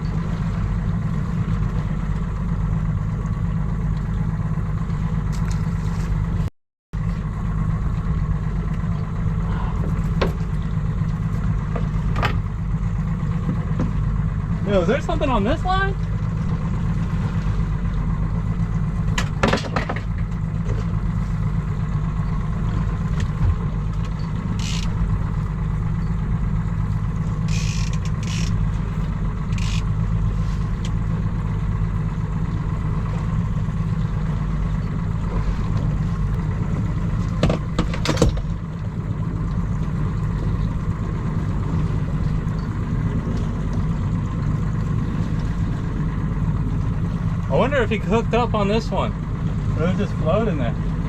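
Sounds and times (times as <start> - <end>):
boat engine idling: 0.0 - 51.0
clicks and knocks of gear: 5.3 - 6.2, 23.1 - 25.0, 27.5 - 28.6, 29.5 - 29.9.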